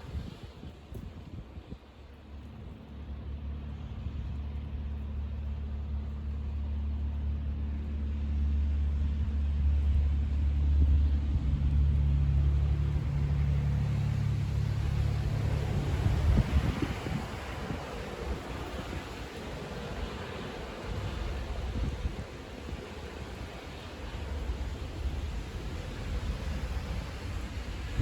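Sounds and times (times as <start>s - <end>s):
vehicle engine approaching: 8.9s - 18.3s.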